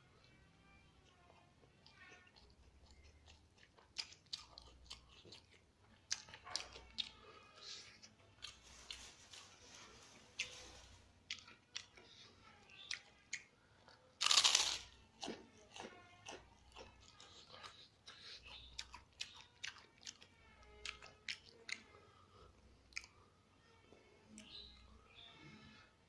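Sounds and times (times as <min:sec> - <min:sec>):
crunching and chewing food: 0:00.1 - 0:25.7.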